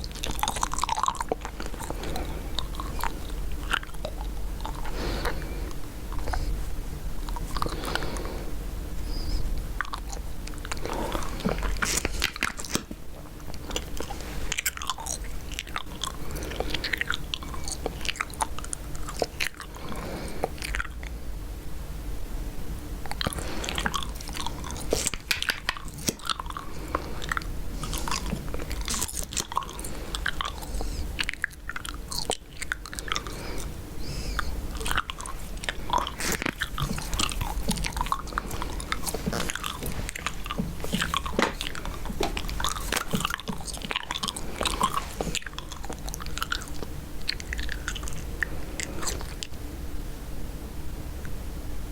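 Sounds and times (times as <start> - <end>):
chewing gum mouth smacks: 0.0 - 6.5, 23.1 - 49.6.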